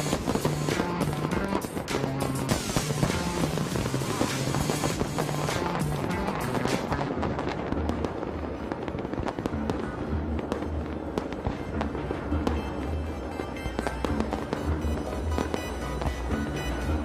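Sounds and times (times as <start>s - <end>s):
music with heavy bass: 0.0s - 7.2s, 11.7s - 17.0s
fireworks cracks and bangs: 0.0s - 17.0s.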